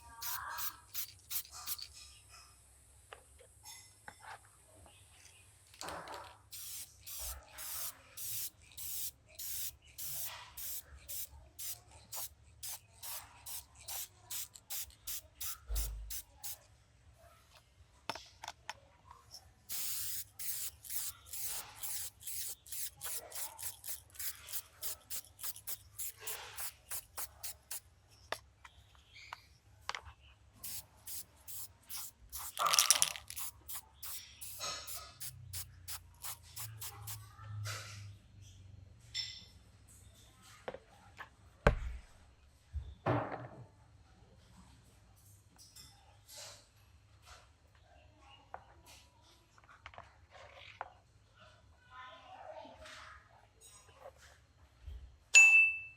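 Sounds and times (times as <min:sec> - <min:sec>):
spray paint hissing bursts: 0:00.0 - 0:01.9, 0:06.5 - 0:16.6, 0:19.7 - 0:27.8, 0:30.6 - 0:37.2.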